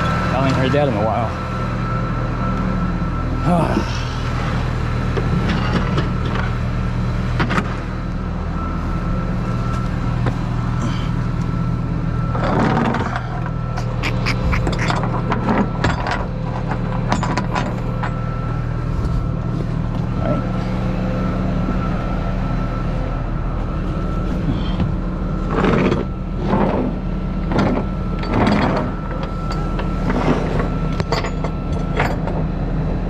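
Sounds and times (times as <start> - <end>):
thin steady whine: 0.0 - 33.0
truck engine running: 0.0 - 33.0
sharp clicks and rattles: 12.3 - 18.2.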